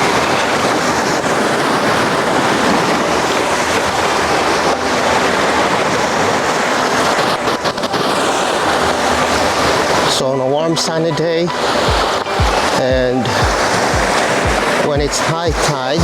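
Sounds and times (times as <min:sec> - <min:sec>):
sea waves on rocky beach: 0:00.0 - 0:16.0.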